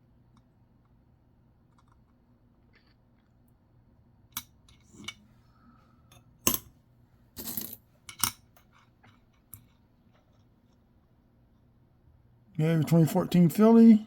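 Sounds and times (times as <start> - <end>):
coins clinking: 7.4 - 7.8.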